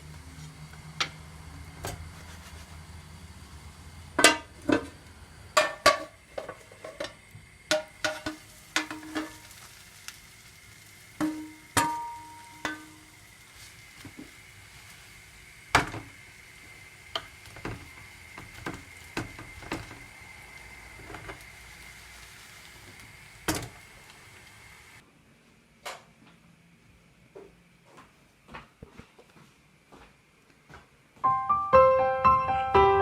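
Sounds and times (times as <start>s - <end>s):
faint steady high hum: 0.0s - 17.6s.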